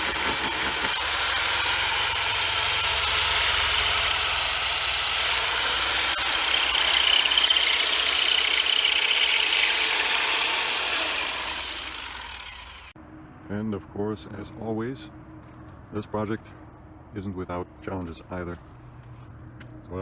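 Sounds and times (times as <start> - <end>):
power drill boring into cinder block: 0.0 - 13.0.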